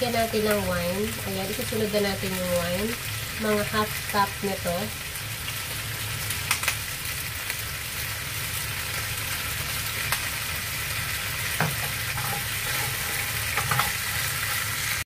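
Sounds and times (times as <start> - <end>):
meat sizzling in a frying pan: 0.0 - 15.0
spatula stirring: 11.6 - 15.0.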